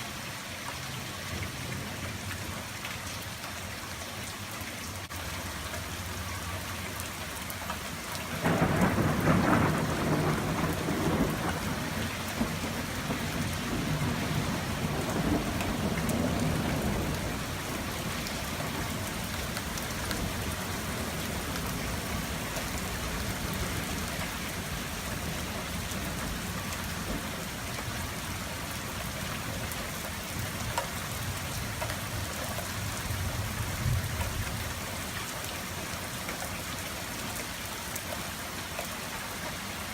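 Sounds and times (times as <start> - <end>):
steady rain: 0.0 - 39.9
thunder clap and rumble: 8.4 - 28.2.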